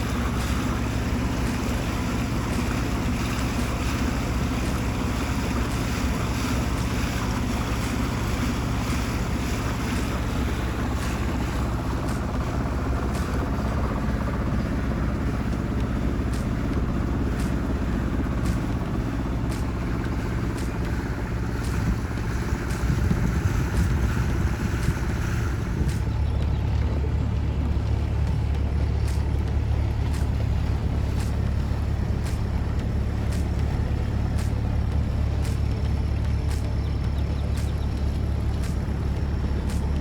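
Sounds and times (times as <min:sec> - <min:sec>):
boat engine drone: 0:00.0 - 0:40.0
wind on microphone: 0:16.0 - 0:40.0.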